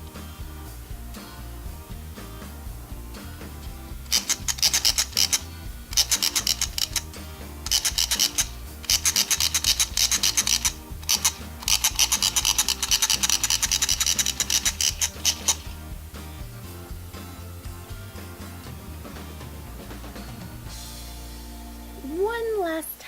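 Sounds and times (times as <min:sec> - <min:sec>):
background music with bass line: 0:00.0 - 0:22.8
hairbrush rasping through hair: 0:04.0 - 0:16.3.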